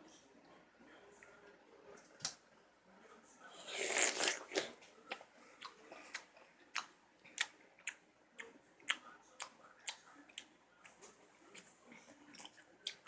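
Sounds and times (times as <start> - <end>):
person chewing with wet crunch: 3.7 - 13.0.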